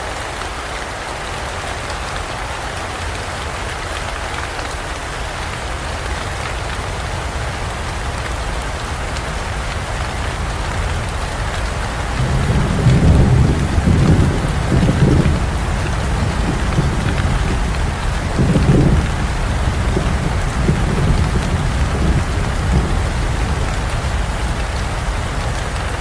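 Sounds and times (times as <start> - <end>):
heavy rain falling: 0.0 - 26.0
thunder rumbling: 10.8 - 26.0.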